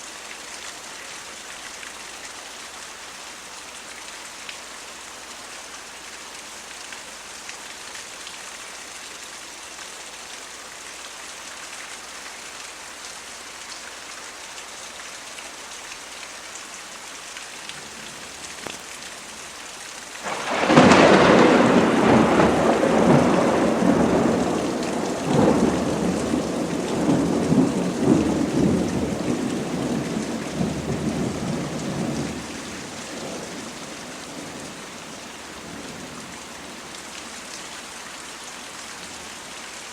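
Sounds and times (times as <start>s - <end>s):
steady rain falling: 0.0s - 39.9s
rumbling thunder: 20.2s - 34.8s.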